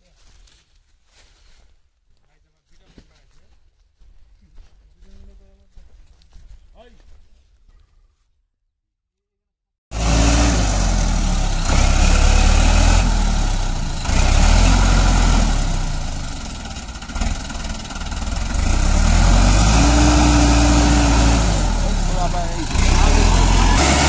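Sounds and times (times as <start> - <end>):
heavy diesel engine working: 9.9 - 24.0.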